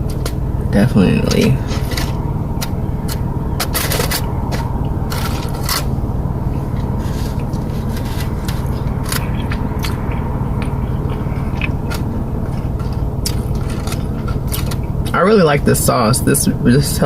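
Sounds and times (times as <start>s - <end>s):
steady low hum: 0.0s - 17.0s
chewing and wet mouth clicks: 8.5s - 14.9s.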